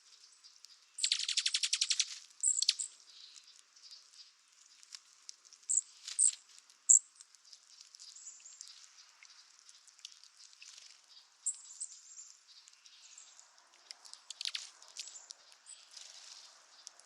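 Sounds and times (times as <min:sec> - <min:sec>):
squirrel chattering trill: 0:01.0 - 0:02.9
squirrel high chirps: 0:01.0 - 0:02.9, 0:05.7 - 0:07.0, 0:14.3 - 0:15.2.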